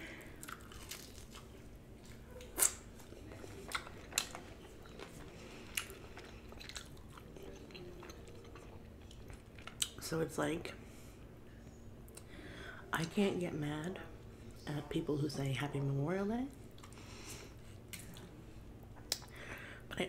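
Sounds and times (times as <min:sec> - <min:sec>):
person biting and chewing: 0:00.4 - 0:10.0.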